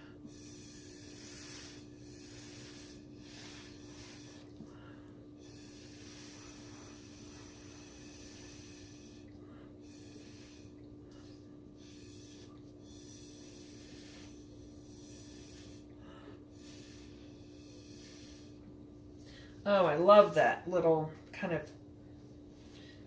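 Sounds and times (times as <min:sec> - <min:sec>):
air puffs through a straw: 0:00.0 - 0:04.6, 0:05.4 - 0:15.9, 0:16.5 - 0:18.6
low electrical hum: 0:00.0 - 0:23.0.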